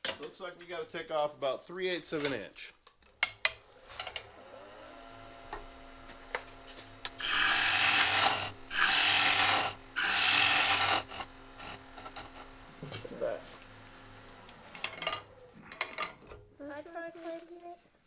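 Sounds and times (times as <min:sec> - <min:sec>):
lathe humming: 0:03.4 - 0:16.0
gouge scraping wood: 0:07.2 - 0:12.6.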